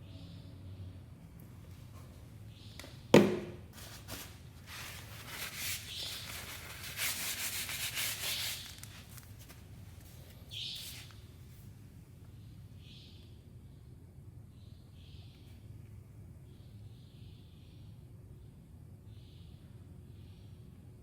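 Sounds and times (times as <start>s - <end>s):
sharp knock: 3.2s - 3.6s
rubbing with tools and parts: 3.7s - 11.2s.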